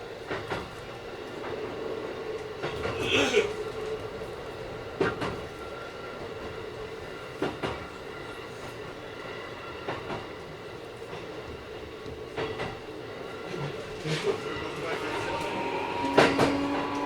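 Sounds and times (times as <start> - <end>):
train rolling noise: 0.0 - 17.0
electric train motor whine: 14.4 - 17.0.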